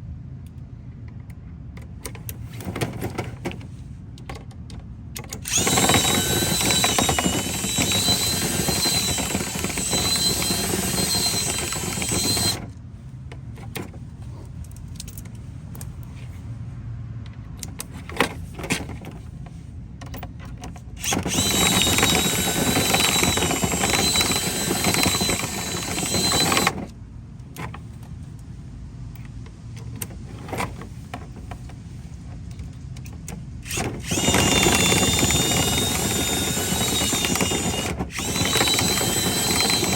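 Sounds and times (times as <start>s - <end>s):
electric motor whining: 5.5s - 12.7s, 21.0s - 26.9s, 33.7s - 39.9s.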